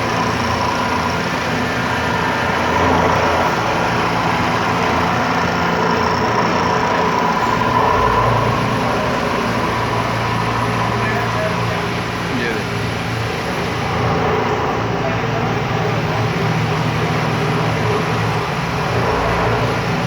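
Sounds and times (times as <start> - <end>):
milling machine cutting metal: 0.0 - 14.8
faint constant whine: 0.0 - 20.0.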